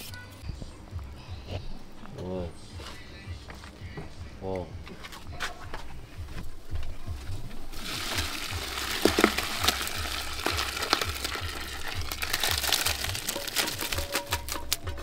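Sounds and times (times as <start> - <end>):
food sizzling in hot oil: 7.7 - 14.6.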